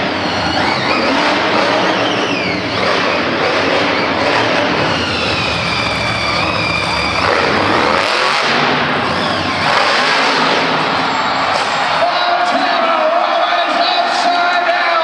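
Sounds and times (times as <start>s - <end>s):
truck engine revving loudly: 0.0s - 12.0s.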